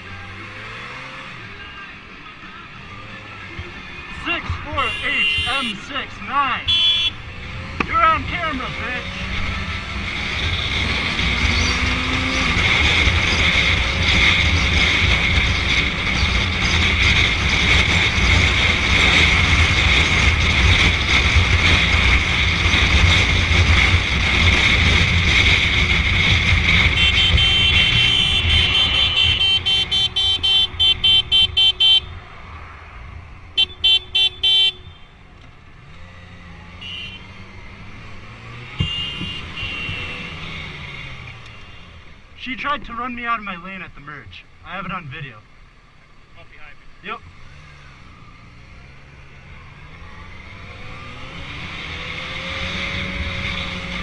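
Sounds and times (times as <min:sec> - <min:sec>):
vehicle horn short beeps: 0:04.8 - 0:05.8, 0:06.7 - 0:07.2, 0:26.9 - 0:32.2, 0:33.6 - 0:35.1, 0:36.8 - 0:37.3, 0:38.8 - 0:40.3
motorcycle engine at speed: 0:06.7 - 0:42.4, 0:47.0 - 0:54.0.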